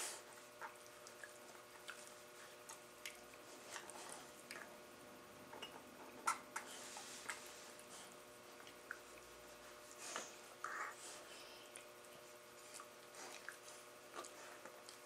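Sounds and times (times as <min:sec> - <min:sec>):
dogs mouth smacks and clicks: 0:00.5 - 0:04.8, 0:08.6 - 0:09.3, 0:11.7 - 0:15.0.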